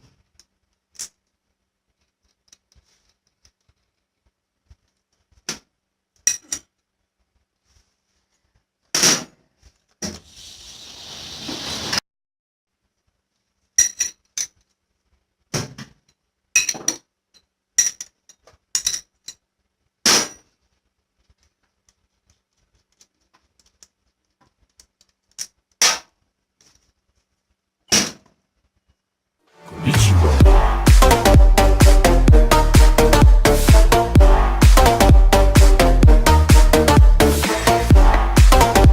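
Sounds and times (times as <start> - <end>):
metal clinking and tapping: 13.8 - 14.6, 16.6 - 19.4.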